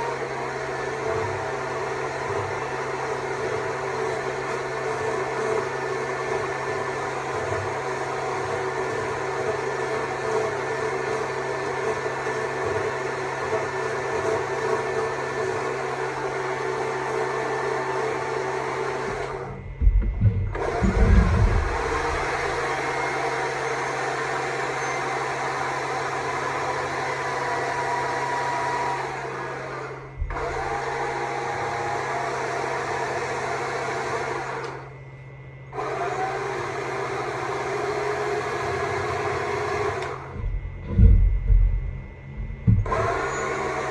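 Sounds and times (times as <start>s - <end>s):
battery chainsaw cutting wood: 0.0s - 19.8s, 20.5s - 34.9s, 35.7s - 40.5s, 42.8s - 43.9s
loud low thumps: 19.6s - 22.7s, 40.4s - 43.1s.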